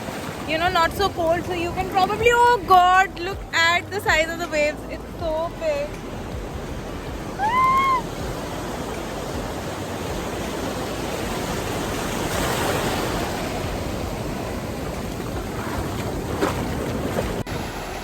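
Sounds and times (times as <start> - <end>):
ocean waves breaking: 0.0 - 18.0
person crying out: 7.4 - 8.1.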